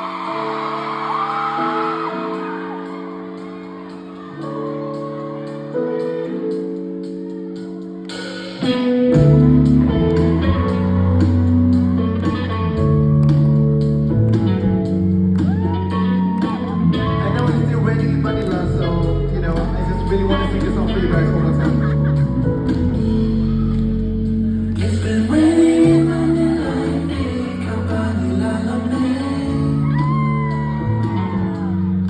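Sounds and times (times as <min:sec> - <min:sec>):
live pop song over sound system: 0:00.0 - 0:32.0.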